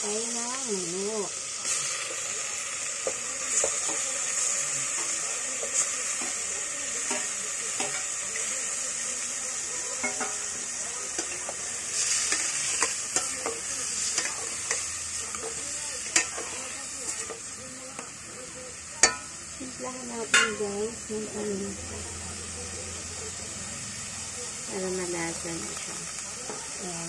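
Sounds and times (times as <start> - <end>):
meat sizzling in hot oil: 0.0 - 27.0.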